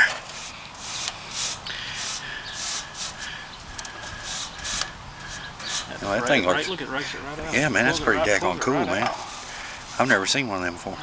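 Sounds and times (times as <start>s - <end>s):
tool scraping metal fins: 0.0s - 6.1s, 9.0s - 10.2s.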